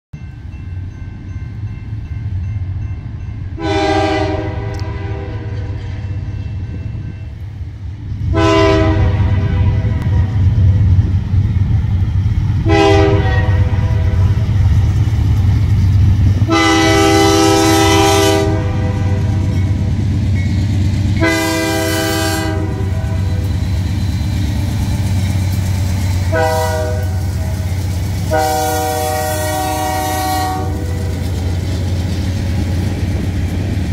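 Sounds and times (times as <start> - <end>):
locomotive engine rumble: 0.2 - 33.9
train air horn blasts: 3.6 - 6.1, 8.3 - 10.4, 12.6 - 14.5, 16.5 - 19.6, 21.2 - 23.6, 26.2 - 31.3.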